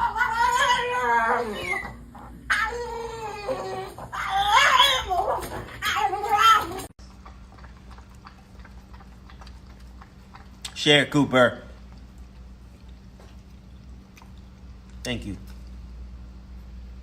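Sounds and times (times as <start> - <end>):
pet animal yowling: 0.0 - 6.9.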